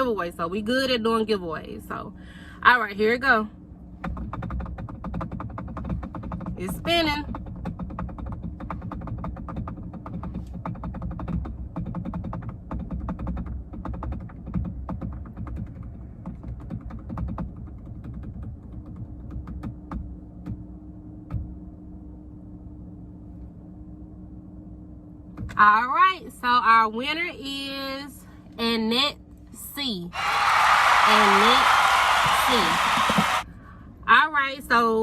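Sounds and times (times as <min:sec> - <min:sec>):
low steady hum: 0:00.0 - 0:10.7, 0:18.5 - 0:30.1.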